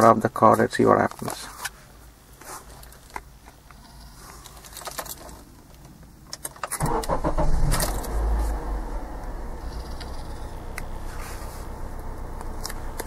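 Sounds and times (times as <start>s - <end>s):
car engine starting and idling: 6.4s - 13.0s.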